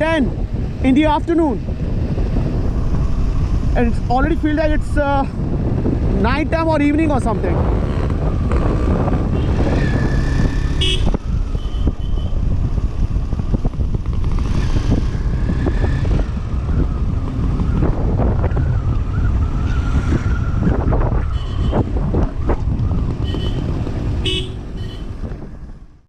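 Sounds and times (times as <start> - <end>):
motorcycle engine and road rumble: 0.0 - 26.0
wind buffeting microphone: 0.0 - 26.0
traffic horn toots: 10.7 - 12.4, 21.3 - 21.9, 23.2 - 25.2.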